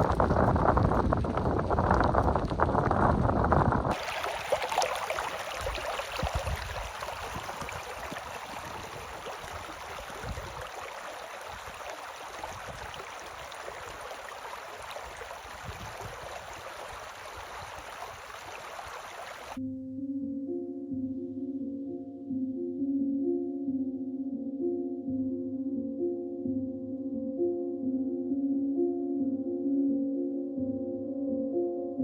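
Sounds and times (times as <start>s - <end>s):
deep rumbling: 0.0s - 3.9s
steady rushing noise: 0.0s - 4.0s.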